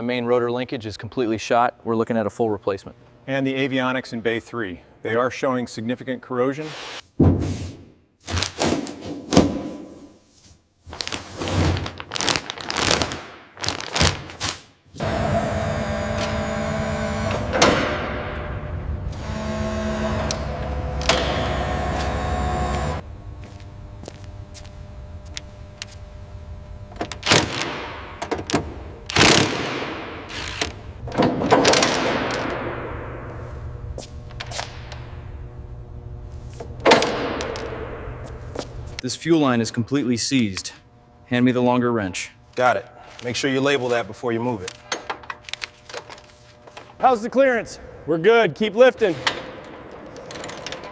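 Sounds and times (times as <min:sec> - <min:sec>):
steady machine hum: 0:15.0 - 0:50.9.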